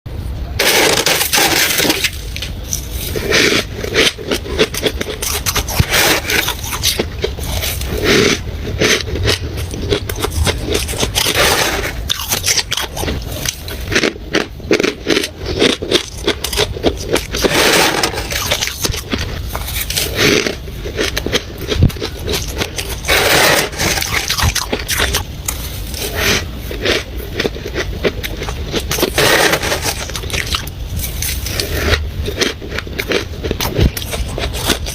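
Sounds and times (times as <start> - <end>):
frost being chewed crunching: 0.6 - 34.9.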